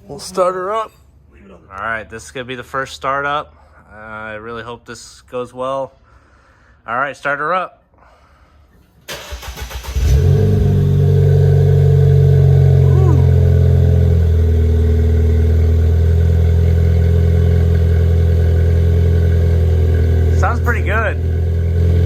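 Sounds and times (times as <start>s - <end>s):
car engine cranking: 9.1s - 22.0s
car engine idling loudly: 10.0s - 22.0s.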